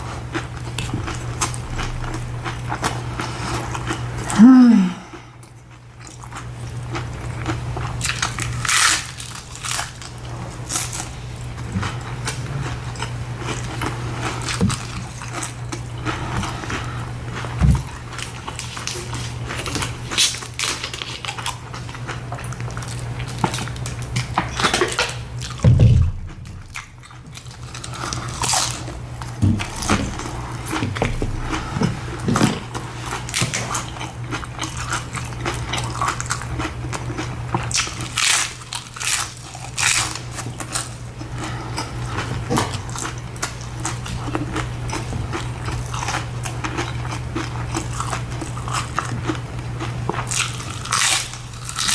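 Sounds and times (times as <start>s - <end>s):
crunchy bites and chewing: 0.0s - 4.4s, 5.0s - 51.9s
steady low hum: 0.0s - 51.9s.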